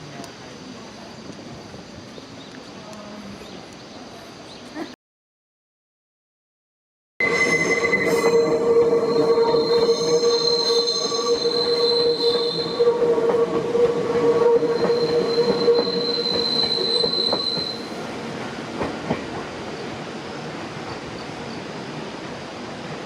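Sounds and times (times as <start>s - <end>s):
train wheels squealing on rails: 7.2s - 18.2s
train running rumble: 7.2s - 19.9s.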